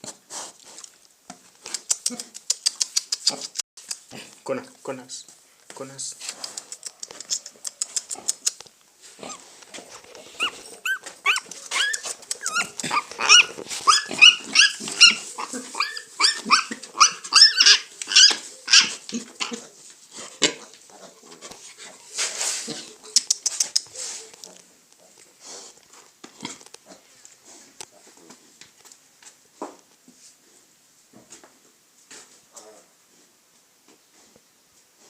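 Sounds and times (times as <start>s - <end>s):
piglet squealing: 9.2s - 9.4s, 10.4s - 19.6s.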